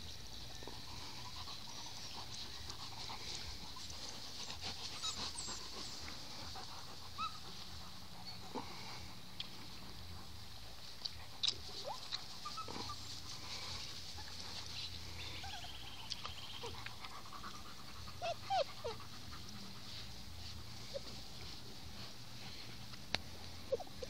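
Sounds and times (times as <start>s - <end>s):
puppies whimpering: 0.6s - 9.7s, 11.7s - 21.6s, 23.3s - 24.0s.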